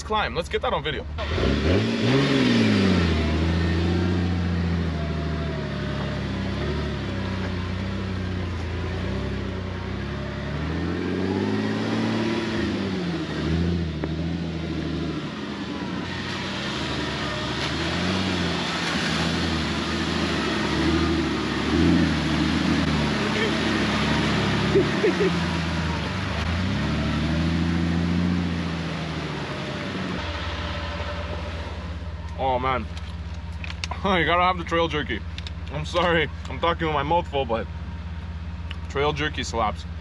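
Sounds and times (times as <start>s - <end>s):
off-road vehicle engine revving: 0.0s - 40.0s.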